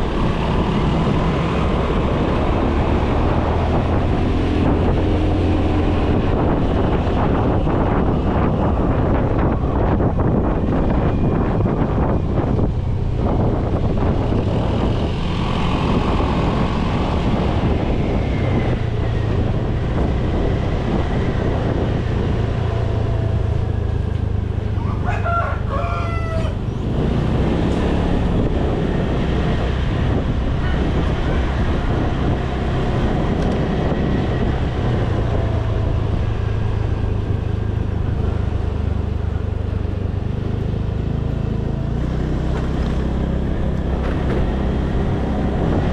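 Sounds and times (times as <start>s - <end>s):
motorcycle engine running: 0.0s - 24.8s
road and wind noise: 0.0s - 45.9s
rooster crowing: 24.8s - 26.6s.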